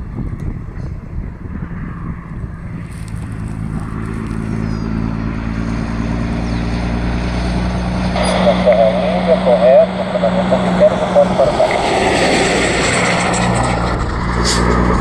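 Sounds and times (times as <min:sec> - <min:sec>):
wind on microphone: 0:00.0 - 0:07.7
propeller aircraft engine: 0:00.0 - 0:15.0.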